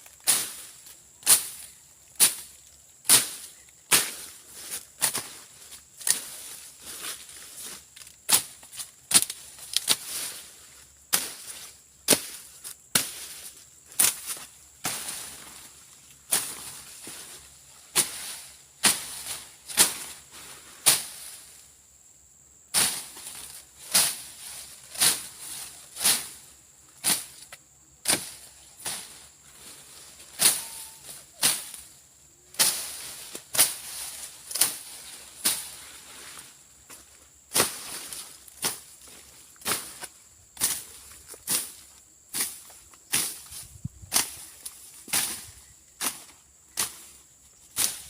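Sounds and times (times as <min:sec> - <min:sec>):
blade slashing through grass: 0:02.2 - 0:04.3, 0:17.9 - 0:20.1, 0:32.5 - 0:35.8, 0:37.5 - 0:47.1, 0:47.7 - 0:48.0.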